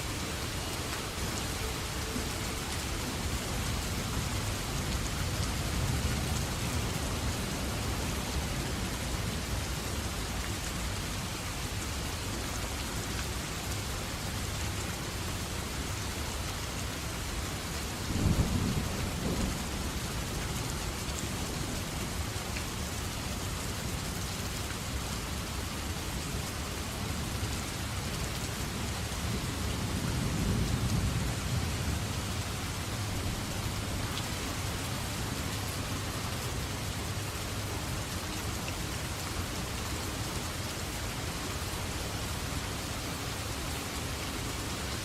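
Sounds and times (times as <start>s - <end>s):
heavy rain falling: 0.0s - 45.0s
thunder rumbling: 18.1s - 20.0s.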